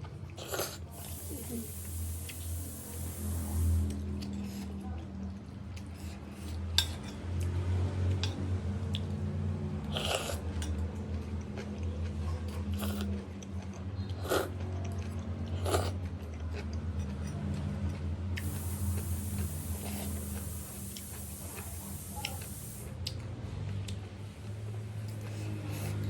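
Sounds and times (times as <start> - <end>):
steady low hum: 0.8 - 4.4, 18.2 - 23.2.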